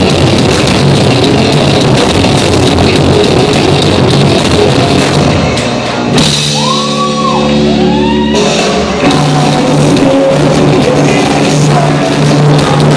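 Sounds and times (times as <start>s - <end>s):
rock band playing live: 0.0s - 12.9s
shouted vocals: 6.6s - 8.6s.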